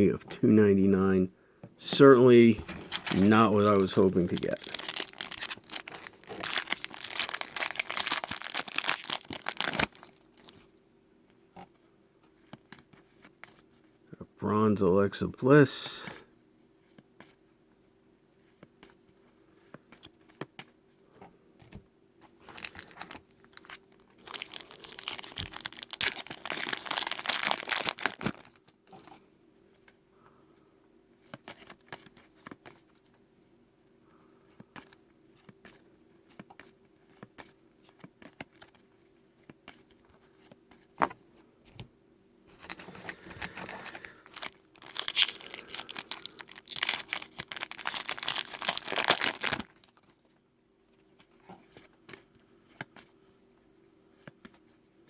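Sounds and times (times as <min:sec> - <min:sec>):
foil wrapper crinkling and tearing: 0:02.8 - 0:10.6, 0:22.4 - 0:28.6, 0:42.6 - 0:50.1.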